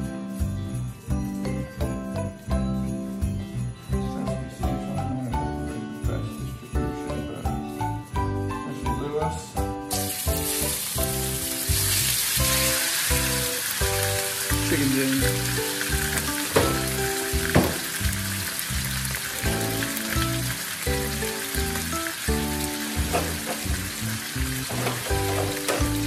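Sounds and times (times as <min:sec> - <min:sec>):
background music with steady beat: 0:00.0 - 0:26.0
chicken sizzling in a wok: 0:09.9 - 0:26.0.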